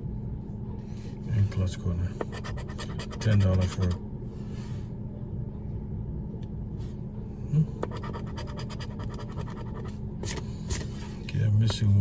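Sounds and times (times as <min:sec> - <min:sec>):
steady low hum: 0:00.0 - 0:12.0
lottery ticket being scratched: 0:02.2 - 0:04.0, 0:07.8 - 0:10.8.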